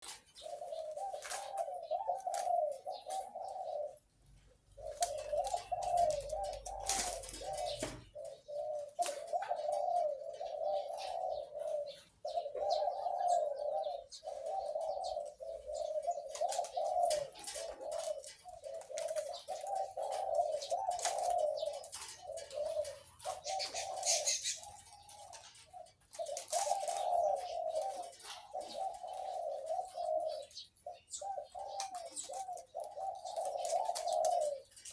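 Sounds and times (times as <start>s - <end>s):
dove cooing: 0.0s - 34.9s.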